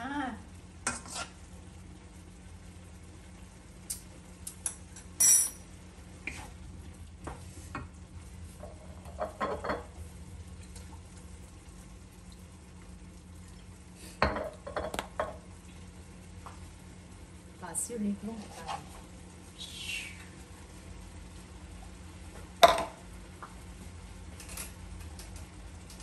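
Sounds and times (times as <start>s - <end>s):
food sizzling in a wok: 0.0s - 10.4s
steady low hum: 0.0s - 26.0s.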